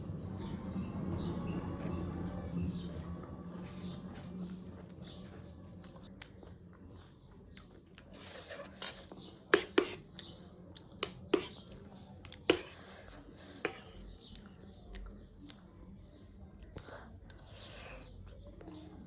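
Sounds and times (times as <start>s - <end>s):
chewing noises: 5.0s - 19.0s.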